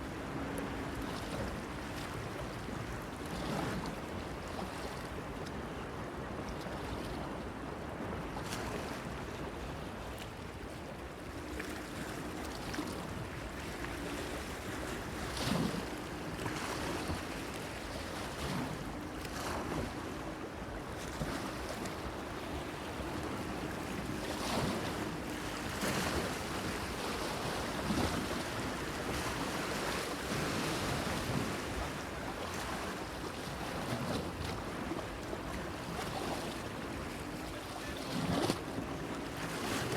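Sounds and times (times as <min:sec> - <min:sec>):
small waves splashing against pier: 0:00.0 - 0:39.9.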